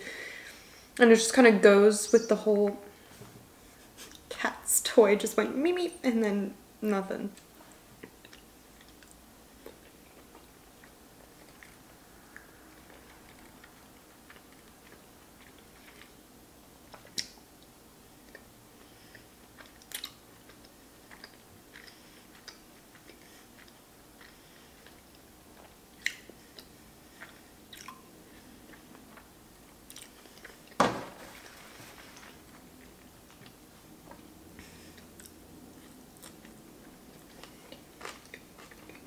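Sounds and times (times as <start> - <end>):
chewing and mouth noises: 7.4 - 30.8, 32.6 - 39.0.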